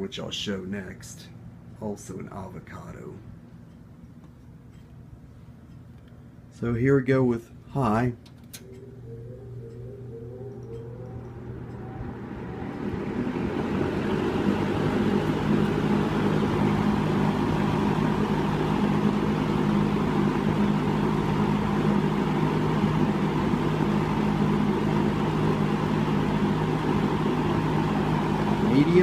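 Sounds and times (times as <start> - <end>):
fan motor hum: 0.0 - 29.0
box fan air rushing: 11.8 - 29.0.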